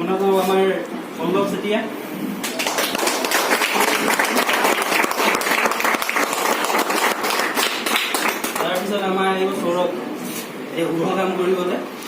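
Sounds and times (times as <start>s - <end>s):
people clapping: 2.4s - 9.0s.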